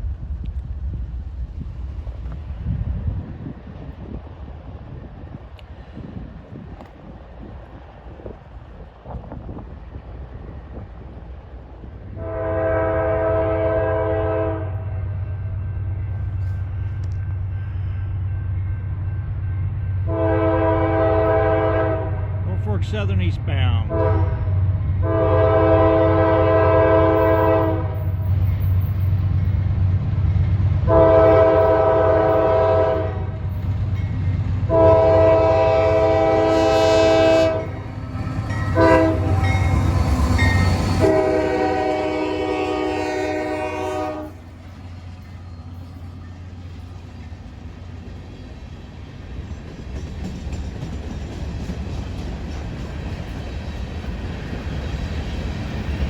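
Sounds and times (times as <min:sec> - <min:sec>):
passing train rumble: 0:00.0 - 0:56.0
locomotive air horn blasts: 0:12.2 - 0:14.9, 0:20.1 - 0:22.4, 0:23.9 - 0:24.4, 0:25.0 - 0:28.0, 0:30.9 - 0:33.4, 0:34.7 - 0:39.8, 0:40.6 - 0:44.4.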